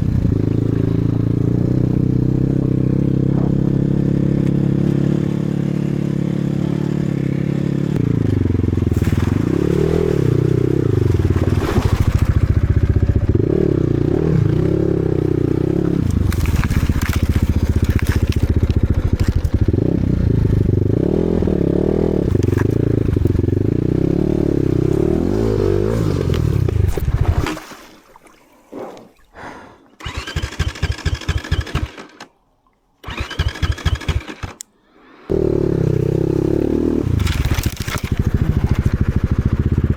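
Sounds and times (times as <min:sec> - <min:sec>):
motorcycle engine revving: 0:00.0 - 0:27.5, 0:30.0 - 0:32.0, 0:33.0 - 0:34.6, 0:35.3 - 0:39.9
engine cranking to restart: 0:30.0 - 0:32.3, 0:33.0 - 0:34.6.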